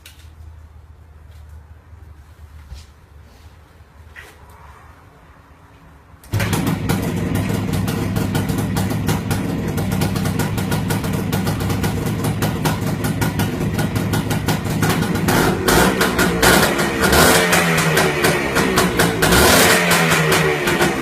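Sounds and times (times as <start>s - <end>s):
two-stroke motorcycle engine idling: 6.4s - 21.0s.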